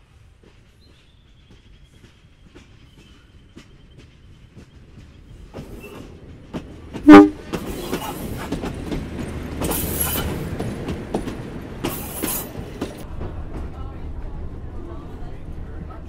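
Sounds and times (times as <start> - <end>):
wheels clicking over rail joints: 1.6 - 13.8
train horn toot: 7.0 - 7.4.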